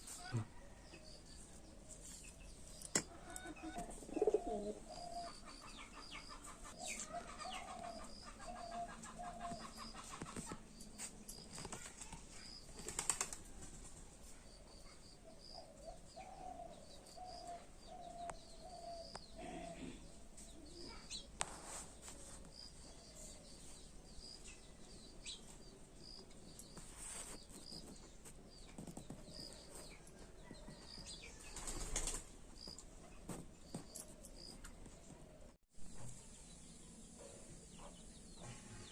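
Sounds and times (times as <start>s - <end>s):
birds chirping: 1.4s - 13.4s
bird cooing: 3.4s - 5.4s, 15.6s - 20.0s
crackles and rustles: 6.4s - 14.5s, 20.9s - 23.4s, 26.2s - 36.2s.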